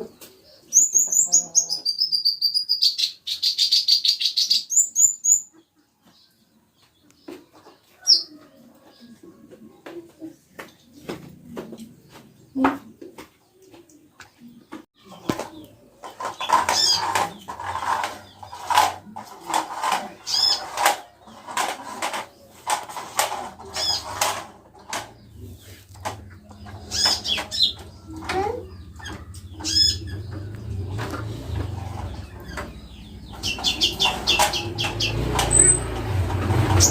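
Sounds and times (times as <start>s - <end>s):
bird chirping: 0.0s - 9.2s, 23.6s - 36.0s.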